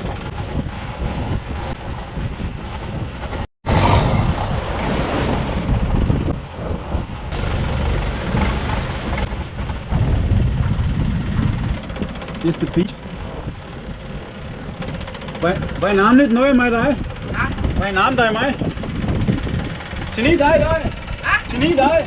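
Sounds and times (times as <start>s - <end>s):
waves washing: 0.0s - 10.3s
boat engine running: 0.0s - 22.0s
wind buffeting microphone: 0.0s - 22.0s.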